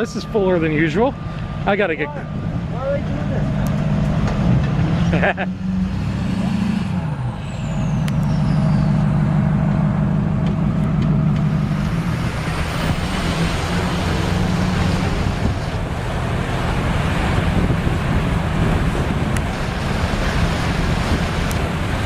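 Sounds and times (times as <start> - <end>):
vehicle engine running: 7.4 - 22.0.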